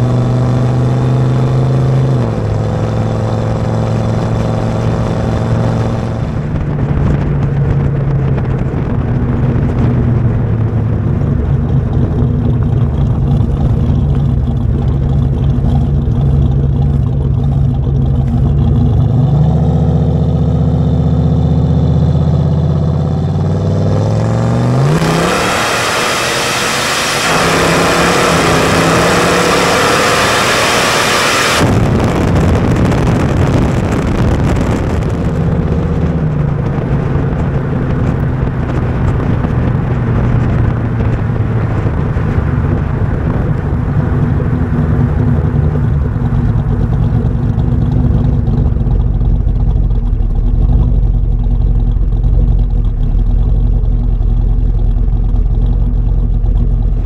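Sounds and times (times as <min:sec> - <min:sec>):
road noise: 0:00.0 - 0:57.0
vehicle engine accelerating: 0:00.0 - 0:57.0
wind rush: 0:03.6 - 0:15.7, 0:23.9 - 0:53.8.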